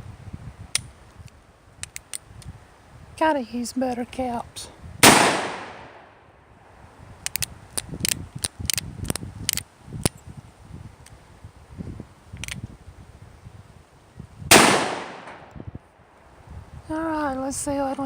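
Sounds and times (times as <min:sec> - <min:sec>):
revolver clicks and snaps: 0:00.7 - 0:02.5, 0:07.2 - 0:10.2, 0:12.4 - 0:12.6
loud gunshot: 0:05.0 - 0:06.1, 0:14.5 - 0:15.5.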